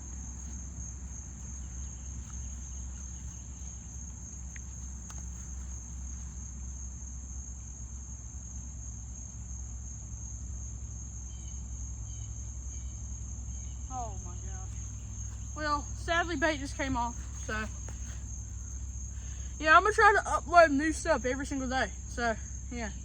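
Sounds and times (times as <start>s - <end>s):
faint ticks: 0.0s - 6.4s
insects trilling: 0.0s - 23.0s
low steady rumble: 0.0s - 23.0s.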